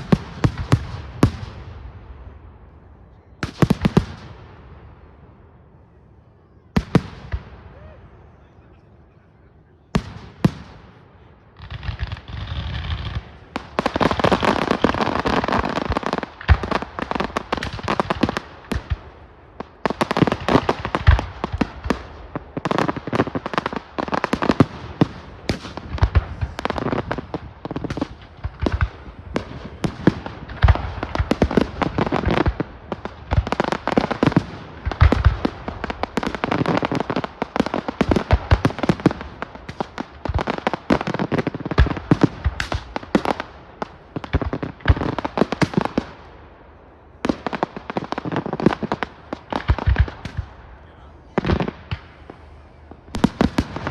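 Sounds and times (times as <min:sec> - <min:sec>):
fireworks banging and crackling: 0:00.0 - 0:02.4, 0:03.2 - 0:05.2, 0:06.7 - 0:08.0, 0:09.9 - 0:53.9.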